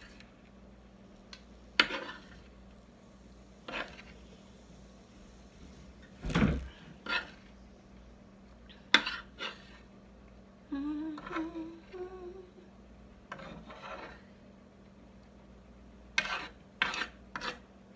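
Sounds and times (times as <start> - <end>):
woman humming: 10.6 - 12.7.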